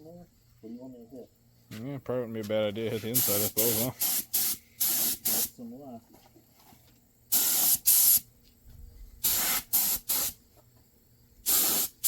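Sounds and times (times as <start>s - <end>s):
spray paint can hissing: 3.0s - 5.5s, 7.3s - 8.3s, 9.2s - 10.4s, 11.4s - 12.0s.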